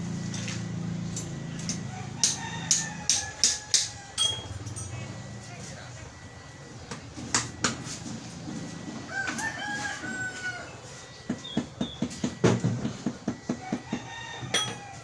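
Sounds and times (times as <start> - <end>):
rooster crowing: 1.8 - 4.2, 9.0 - 11.0, 13.5 - 15.0.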